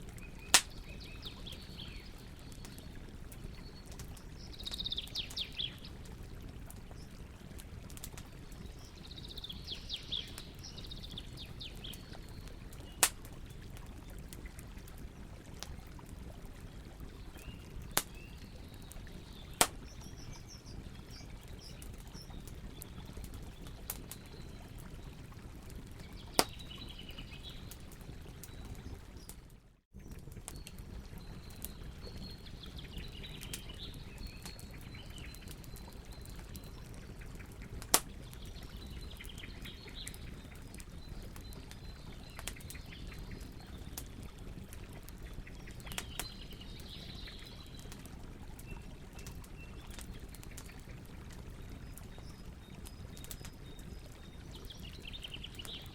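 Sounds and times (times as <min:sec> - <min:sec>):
campfire crackling and popping: 0:00.0 - 0:55.9
birds chirping: 0:00.1 - 0:06.0, 0:08.0 - 0:13.6, 0:26.0 - 0:29.3.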